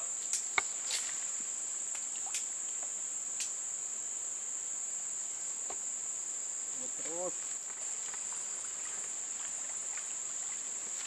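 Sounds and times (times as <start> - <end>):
insects droning: 0.0 - 11.0
faint ticks: 1.9 - 3.6.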